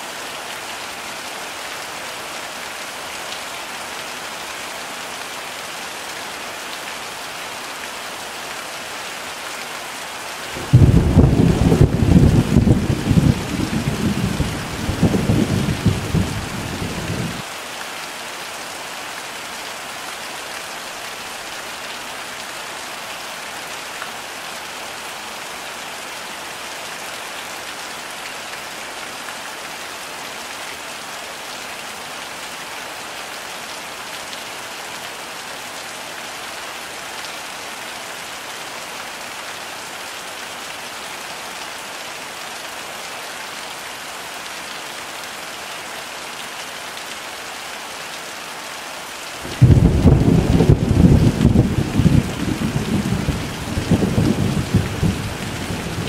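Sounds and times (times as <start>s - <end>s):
heavy rain falling: 0.0s - 56.0s
low rumble of thunder: 10.6s - 17.4s, 49.5s - 56.0s.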